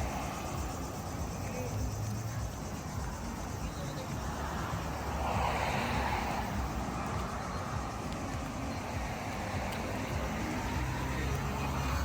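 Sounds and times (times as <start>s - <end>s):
low street rumble: 0.0s - 12.0s
car passing close by: 3.5s - 12.0s.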